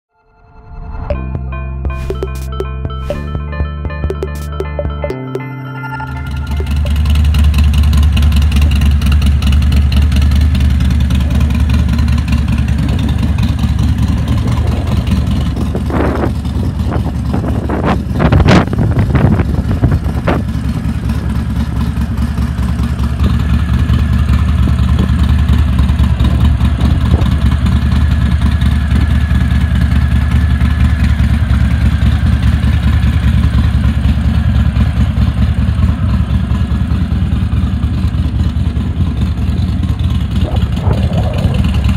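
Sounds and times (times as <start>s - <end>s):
throttle blips: 1.1s - 7.8s
motorcycle engine idling: 6.9s - 41.9s.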